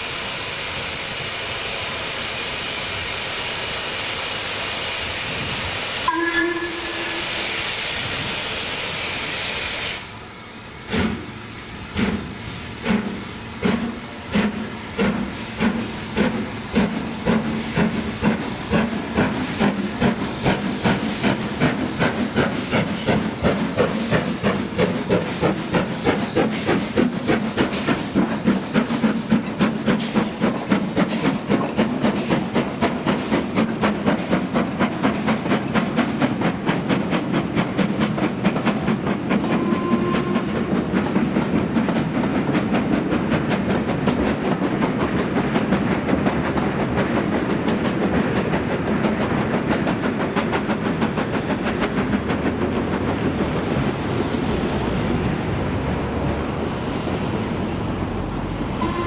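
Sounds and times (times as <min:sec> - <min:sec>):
steam hiss: 0:00.0 - 0:41.8
steam locomotive exhaust beats: 0:00.0 - 0:59.0.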